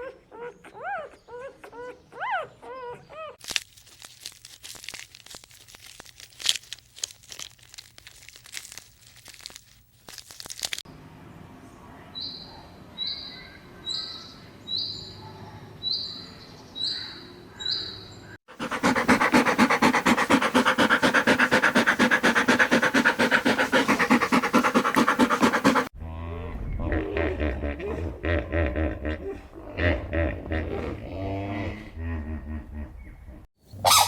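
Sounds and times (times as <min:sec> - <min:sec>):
rapid pulsing animal sound: 0:18.5 - 0:25.9
bird short high call: 0:33.8 - 0:34.0.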